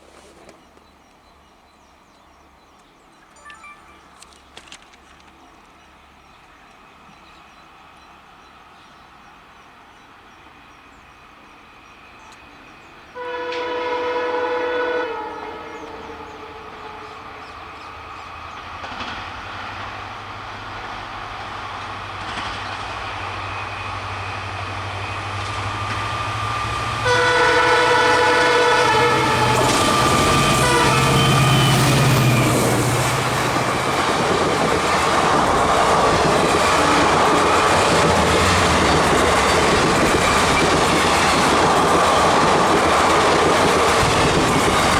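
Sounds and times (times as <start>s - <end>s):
diesel locomotive engine: 3.5s - 44.9s
train horn blasts: 13.1s - 17.6s, 26.6s - 33.0s
train wheels clattering: 18.2s - 27.1s, 29.0s - 44.9s.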